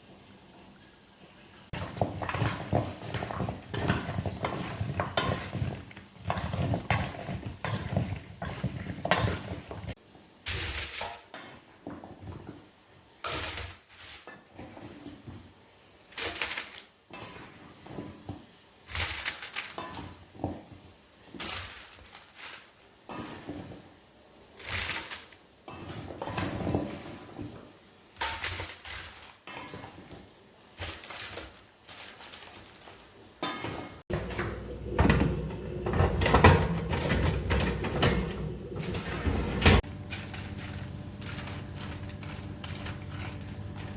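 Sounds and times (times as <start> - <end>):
utensils knocking against pots: 33.4 - 40.8.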